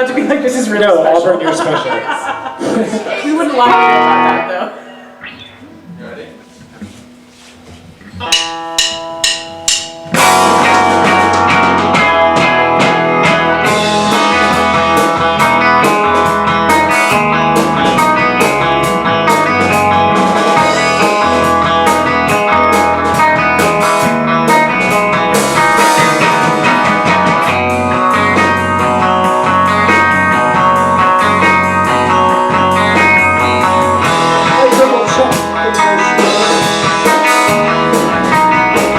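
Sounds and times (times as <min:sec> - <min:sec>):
electric guitar: 0:02.2 - 0:38.9
live band playing: 0:02.6 - 0:38.9
drum hits: 0:08.2 - 0:32.0.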